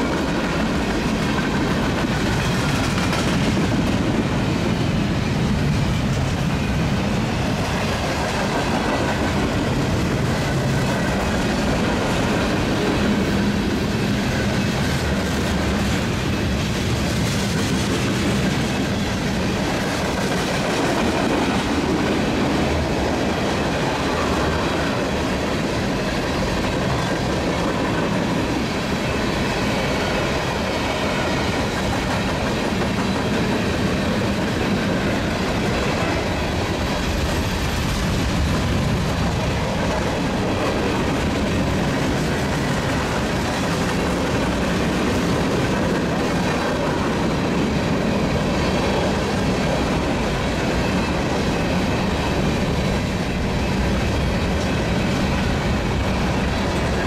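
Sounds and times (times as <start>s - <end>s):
freight train wheels clattering: 0.0s - 57.0s.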